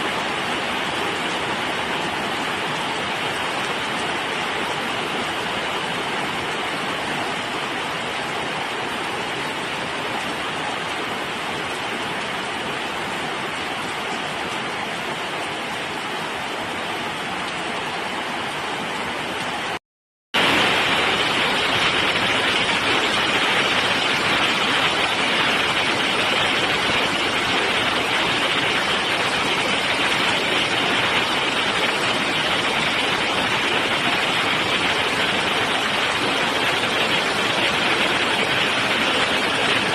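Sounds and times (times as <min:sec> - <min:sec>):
heavy rain pouring: 0:00.0 - 0:19.8, 0:20.4 - 0:39.9.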